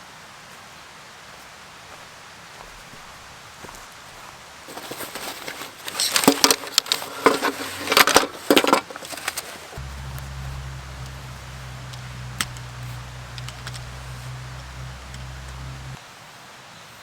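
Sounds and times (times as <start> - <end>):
crackling rustles: 3.7 - 16.0
sharp clicks and knocks: 9.8 - 16.0
steady low hum: 9.8 - 16.0.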